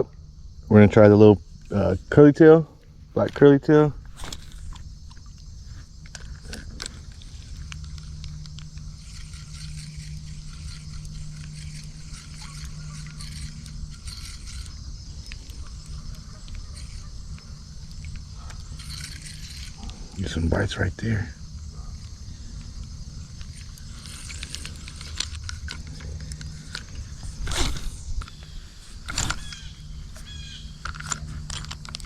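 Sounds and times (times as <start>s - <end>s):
fishing reel whirring: 0.7s - 32.0s
small clicks and handling noise: 2.8s - 20.7s, 21.5s - 32.0s.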